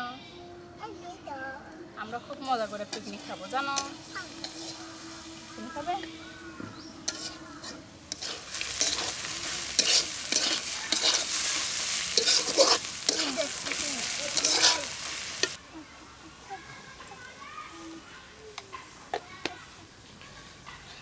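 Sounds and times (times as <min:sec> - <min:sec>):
onions sizzling in oil: 0:02.4 - 0:20.6
metal spatula scraping pan: 0:02.6 - 0:06.0, 0:07.0 - 0:15.6.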